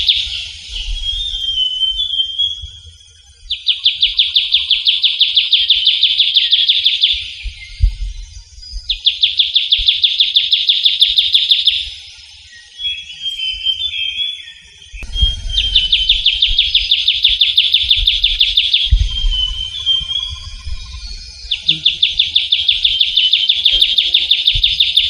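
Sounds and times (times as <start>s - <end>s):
bird singing rapid trills: 0.0s - 25.0s
soft warbled bird notes: 0.0s - 25.0s.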